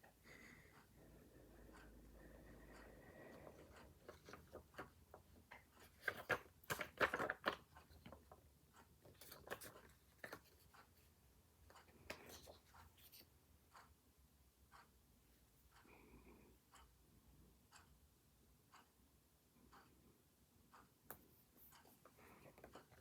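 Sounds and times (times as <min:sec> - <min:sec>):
paper rustling: 0:03.9 - 0:08.2, 0:09.0 - 0:10.7.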